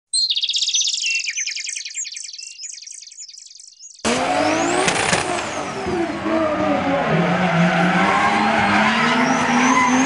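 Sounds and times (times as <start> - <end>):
small bird chirping: 0.1 - 4.1
race car sound effect: 4.0 - 10.0.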